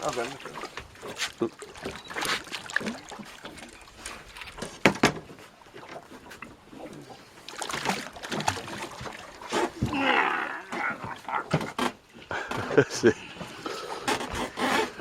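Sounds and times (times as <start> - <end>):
water splashing: 0.0 - 15.0
sharp knocks on a boat: 4.5 - 5.5.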